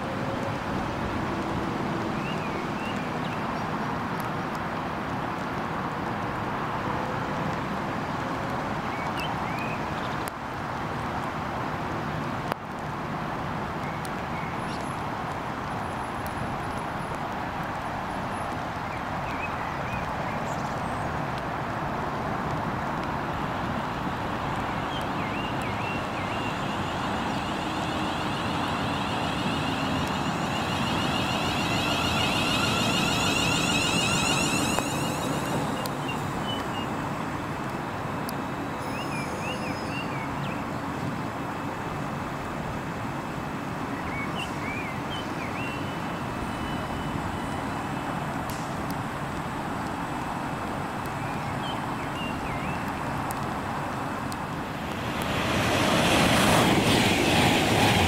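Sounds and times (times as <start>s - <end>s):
train rumble: 22.4s - 38.3s, 54.2s - 58.0s
high whine: 24.1s - 37.8s.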